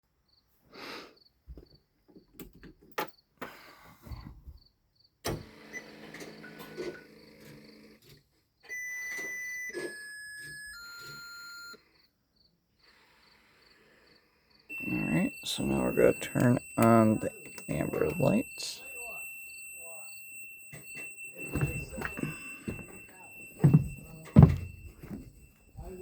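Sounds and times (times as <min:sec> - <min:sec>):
electronic beep tones: 0:14.7 - 0:26.0.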